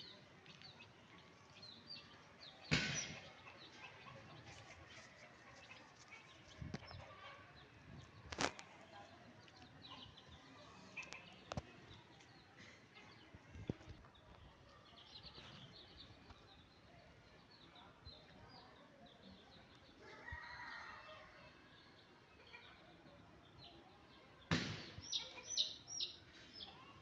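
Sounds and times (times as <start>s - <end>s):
chickens clucking: 2.0s - 15.6s.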